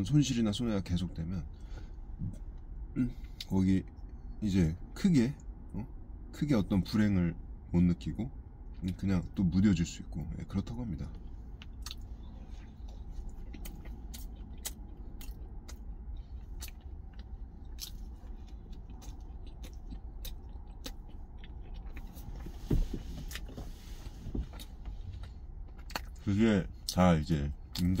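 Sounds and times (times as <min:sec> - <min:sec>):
low rumble in truck cab: 0:00.0 - 0:28.0
person chewing sandwich: 0:11.1 - 0:28.0.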